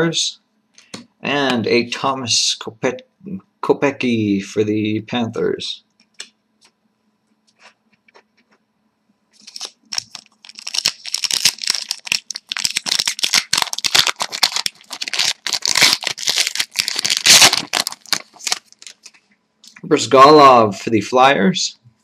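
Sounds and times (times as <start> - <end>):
foil wrapper tearing and crinkling: 9.4 - 19.2.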